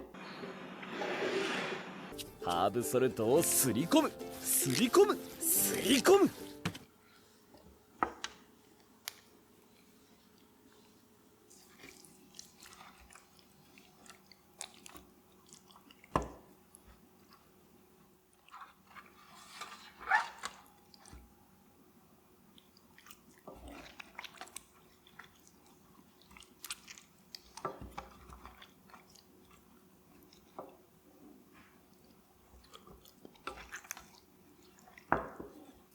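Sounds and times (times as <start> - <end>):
wet squishing of hands on chicken: 9.1 - 17.7, 22.4 - 35.9.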